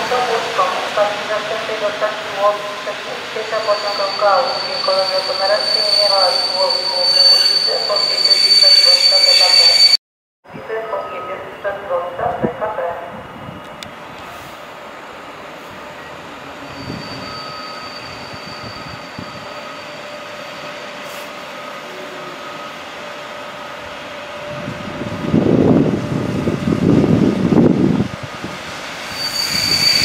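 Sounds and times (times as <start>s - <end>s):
electric train hum: 0.0s - 10.0s, 11.0s - 30.0s
train rumble: 22.8s - 30.0s.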